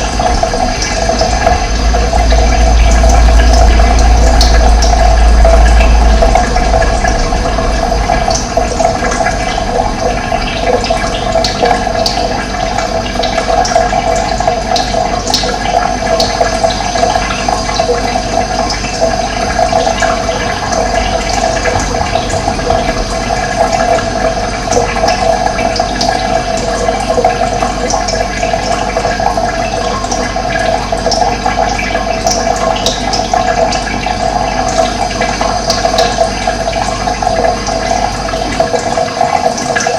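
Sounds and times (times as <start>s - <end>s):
low rumble: 0.0s - 14.5s, 17.3s - 26.7s
running water rushing: 0.0s - 39.9s.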